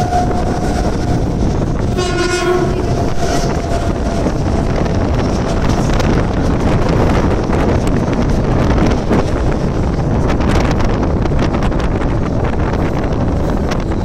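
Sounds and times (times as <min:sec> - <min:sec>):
train horn: 0:00.0 - 0:05.7
train rumbling along track: 0:00.0 - 0:14.0.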